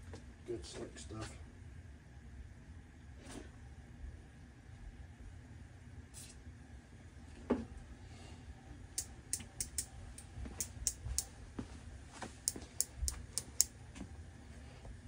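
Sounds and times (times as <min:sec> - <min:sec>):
low steady hum: 0:00.0 - 0:15.0
sharp metallic clicks: 0:09.0 - 0:11.3, 0:12.5 - 0:13.7.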